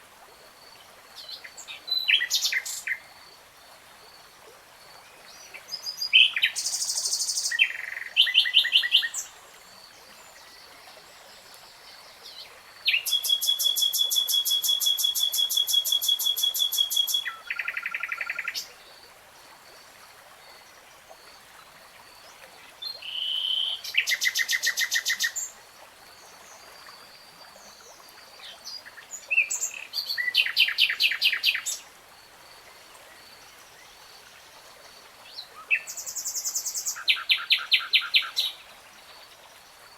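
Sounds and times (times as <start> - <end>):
nightingale singing trills: 12.9 - 18.7, 22.8 - 25.5, 28.4 - 31.8.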